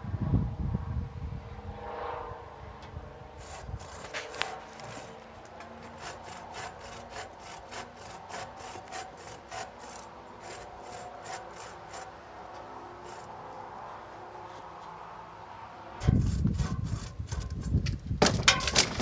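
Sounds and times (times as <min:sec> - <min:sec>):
hand saw cutting wood: 0:03.4 - 0:15.4, 0:16.0 - 0:19.0.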